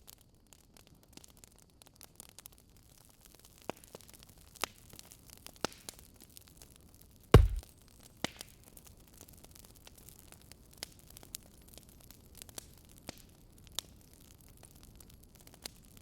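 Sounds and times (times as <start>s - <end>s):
loud deep thump: 7.4s - 7.6s.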